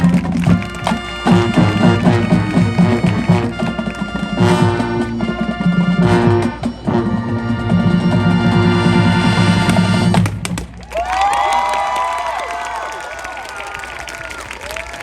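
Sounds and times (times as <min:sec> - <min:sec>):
drum strokes: 0:00.0 - 0:10.9
marching band playing: 0:00.0 - 0:11.1.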